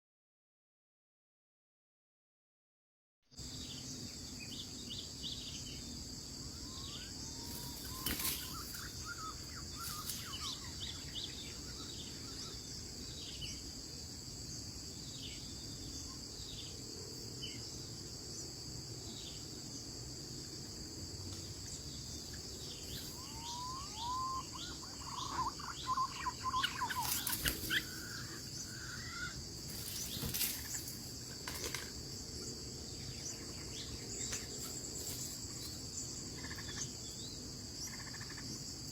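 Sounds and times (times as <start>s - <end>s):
insects droning: 3.3s - 38.9s
birds chattering: 6.6s - 13.6s, 21.5s - 38.6s.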